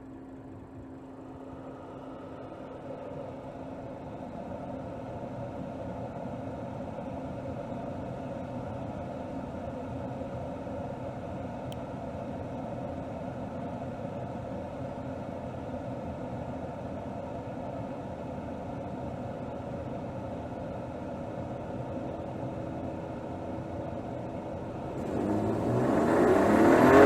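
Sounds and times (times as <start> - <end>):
car engine running at low revs: 21.9 - 27.0.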